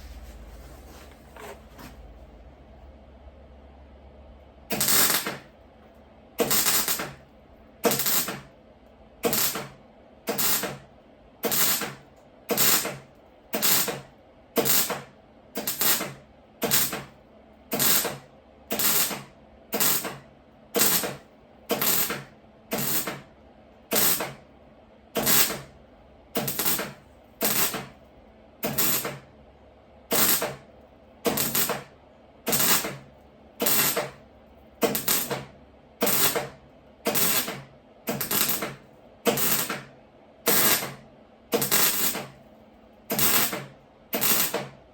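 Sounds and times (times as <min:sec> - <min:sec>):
welding arc crackling: 0:04.7 - 0:05.5, 0:06.4 - 0:07.2, 0:07.8 - 0:08.5, 0:09.2 - 0:13.0, 0:13.6 - 0:17.1, 0:17.7 - 0:20.2, 0:20.8 - 0:23.2, 0:23.9 - 0:24.4, 0:25.2 - 0:25.7, 0:26.4 - 0:28.0, 0:28.6 - 0:29.2, 0:30.1 - 0:31.9, 0:32.5 - 0:33.0, 0:33.6 - 0:34.2, 0:34.8 - 0:39.9, 0:40.5 - 0:42.4, 0:43.1 - 0:44.8.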